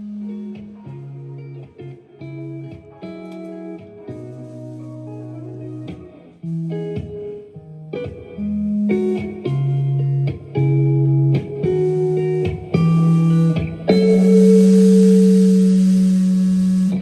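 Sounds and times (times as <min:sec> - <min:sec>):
high noise wash: 0:13.9 - 0:17.0.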